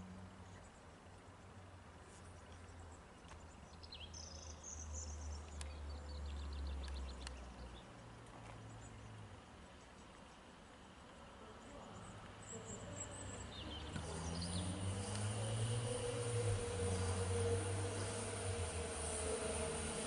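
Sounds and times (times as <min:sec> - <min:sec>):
light ticks: 0:05.4 - 0:05.8, 0:06.8 - 0:07.4
electric train rumble: 0:10.7 - 0:20.0
birds chirping: 0:11.6 - 0:20.0.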